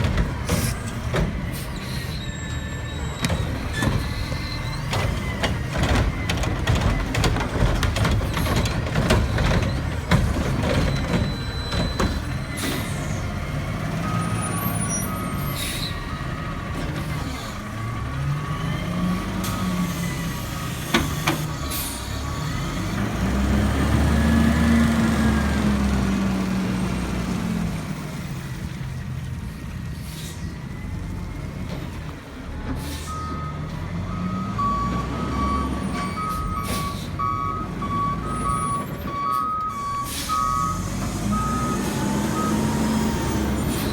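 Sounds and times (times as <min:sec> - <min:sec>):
diesel engine revving: 0:00.0 - 0:43.9
air brakes hissing: 0:11.7 - 0:13.3, 0:14.5 - 0:16.1, 0:29.9 - 0:30.7, 0:32.7 - 0:33.4, 0:35.9 - 0:37.2, 0:39.3 - 0:42.0
reversing beeper: 0:33.1 - 0:43.9.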